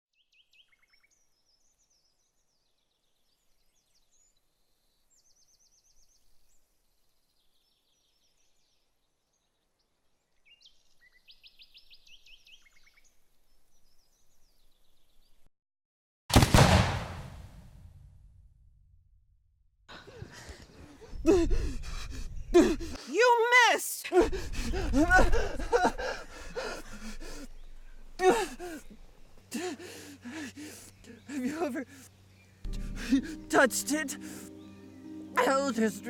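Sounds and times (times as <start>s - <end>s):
songbirds chirping and trilling: 0.2s - 15.5s, 19.9s - 36.0s
loud bang: 16.3s - 17.9s.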